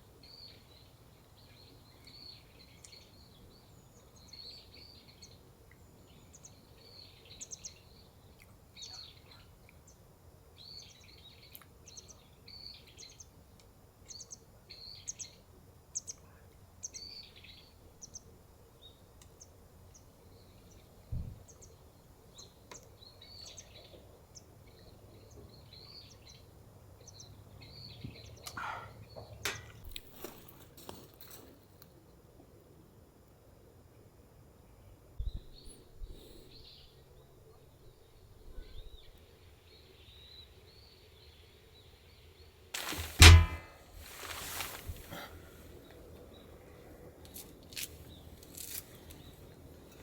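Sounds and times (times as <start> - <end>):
small birds chirping: 0.0 - 29.9
dull thump: 42.8 - 45.1.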